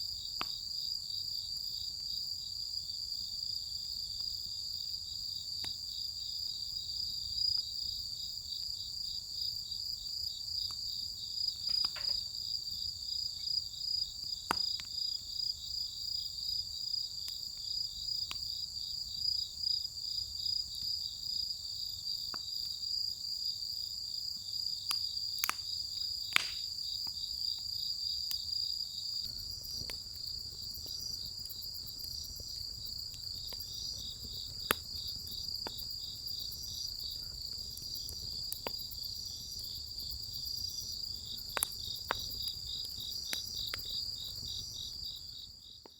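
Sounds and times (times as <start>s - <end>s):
firewood popping and crackling: 11.6s - 12.2s, 24.9s - 26.7s, 29.2s - 45.6s
insects trilling: 24.7s - 45.9s.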